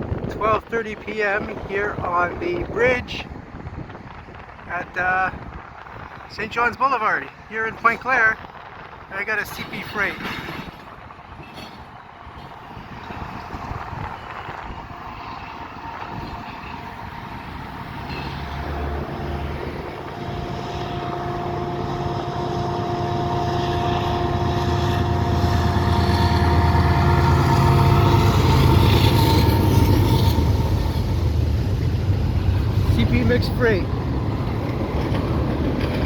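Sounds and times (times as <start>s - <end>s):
diesel locomotive engine rumble: 0.0s - 36.0s
steady whine: 11.6s - 35.2s.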